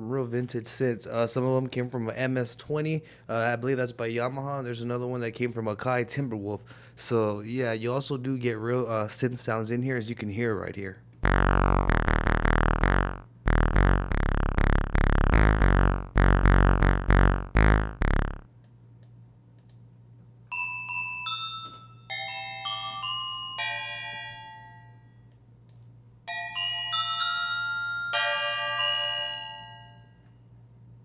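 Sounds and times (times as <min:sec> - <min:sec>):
buzzy synth chord stabs: 0:11.2 - 0:18.5
bell-like synth melody: 0:21.0 - 0:25.0, 0:26.3 - 0:30.2.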